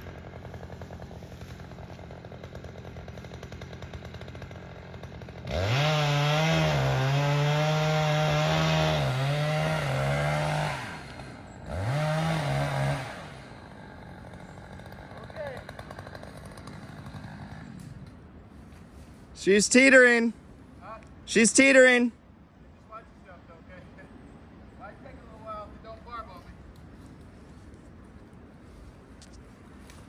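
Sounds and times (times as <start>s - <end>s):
chainsaw revving and cutting: 0.0s - 18.2s.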